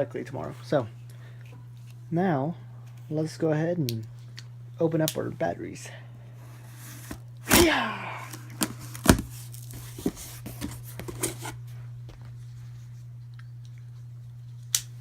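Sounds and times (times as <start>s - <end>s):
steady low hum: 0.0s - 15.0s
packaging clicks and rustles: 8.3s - 11.6s.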